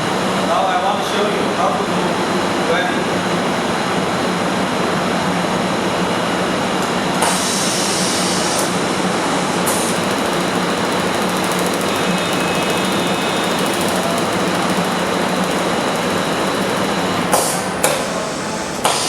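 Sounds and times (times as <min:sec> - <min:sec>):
laser welding machine noise: 0:06.0 - 0:19.0.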